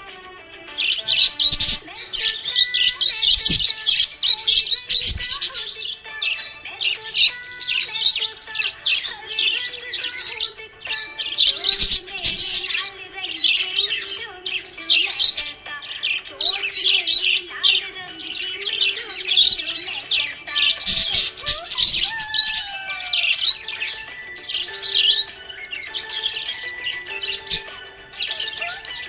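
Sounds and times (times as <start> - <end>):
budgerigars chirping: 0.7 - 29.0.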